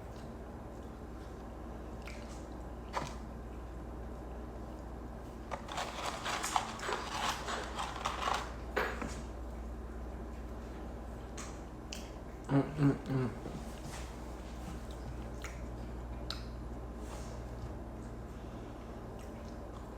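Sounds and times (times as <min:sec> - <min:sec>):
crunchy chewing: 0:04.6 - 0:08.8.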